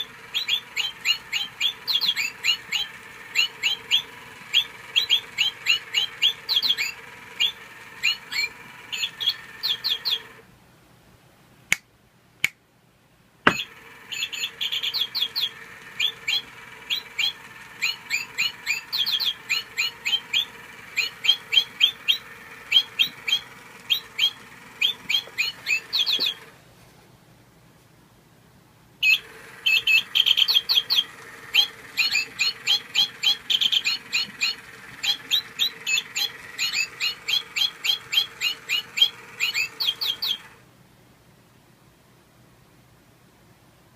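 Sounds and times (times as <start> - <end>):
toy bird chirping: 0.0 - 10.4, 13.5 - 26.5, 29.0 - 40.6
faint steady hum: 0.0 - 43.9.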